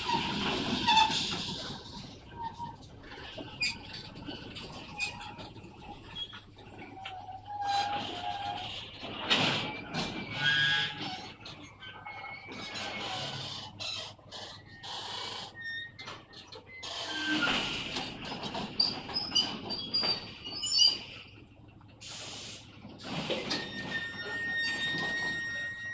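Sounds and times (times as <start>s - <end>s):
freight train rolling: 0.0s - 25.9s
high-pitched wheel squeals: 4.8s - 17.9s, 23.2s - 25.9s.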